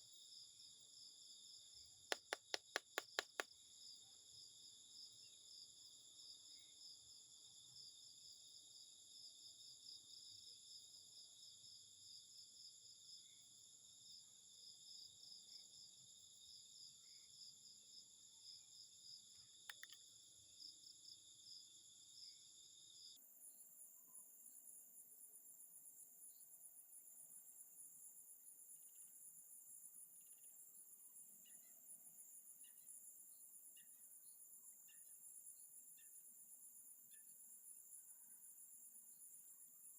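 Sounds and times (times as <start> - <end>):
sharp click: 2.1 - 3.5, 19.7 - 20.0.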